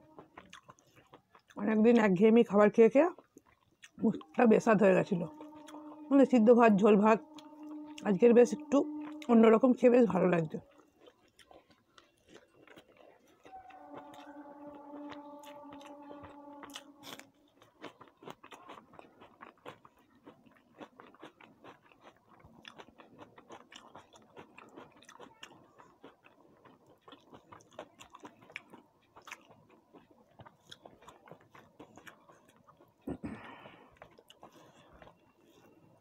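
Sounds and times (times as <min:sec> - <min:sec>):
close chewing with wet clicks: 0:00.1 - 0:04.4, 0:10.5 - 0:13.5, 0:17.6 - 0:36.0
steady pitched tone: 0:04.0 - 0:10.6, 0:13.4 - 0:17.8.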